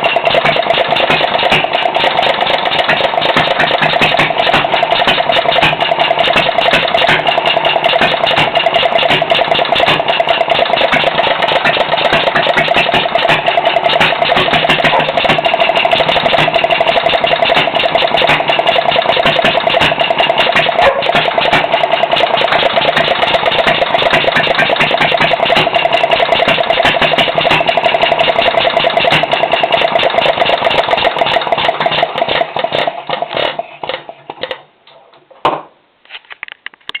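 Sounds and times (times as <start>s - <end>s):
single-cylinder engine running: 0.0s - 34.6s
loud knock: 35.4s - 35.7s.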